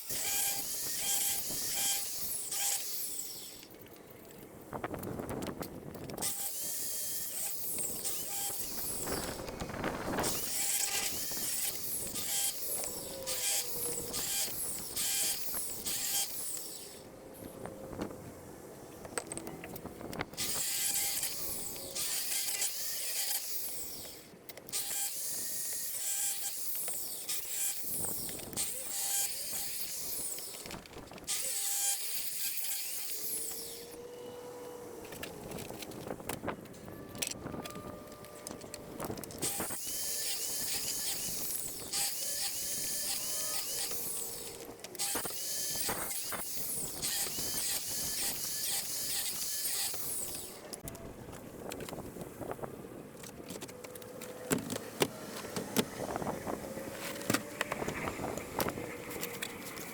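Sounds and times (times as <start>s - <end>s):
rasping clattering mechanical work: 53.1s - 59.9s.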